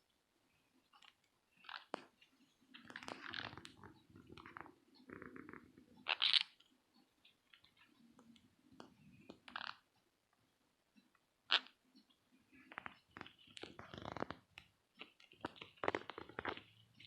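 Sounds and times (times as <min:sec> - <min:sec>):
crunchy scratchy noises: 0:01.0 - 0:06.6, 0:12.5 - 0:17.0.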